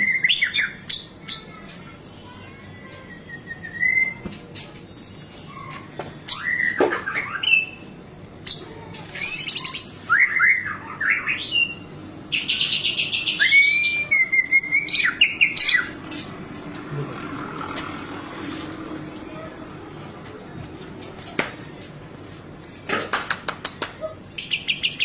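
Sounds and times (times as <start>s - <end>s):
bird singing whistled phrases: 3.0s - 4.2s, 6.3s - 7.8s, 9.2s - 15.9s, 24.4s - 25.0s.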